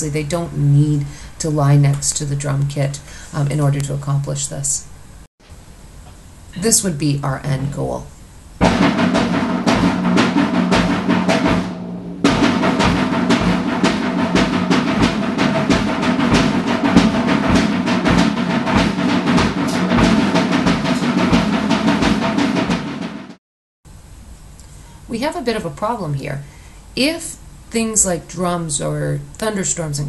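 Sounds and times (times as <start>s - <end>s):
drum kit played loudly: 8.6s - 23.4s.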